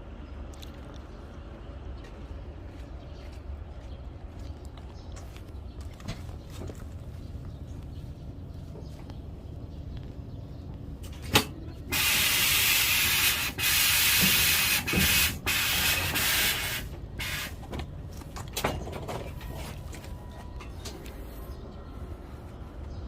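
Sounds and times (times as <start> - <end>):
truck low rumble: 0.0 - 23.0
rushing air hiss: 11.9 - 17.6.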